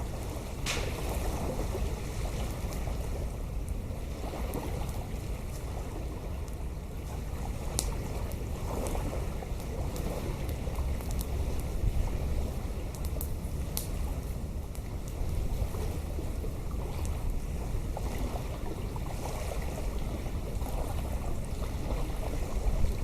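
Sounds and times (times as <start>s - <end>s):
wind buffeting microphone: 0.0s - 23.0s
sharp clicks and cracks: 0.6s - 1.1s.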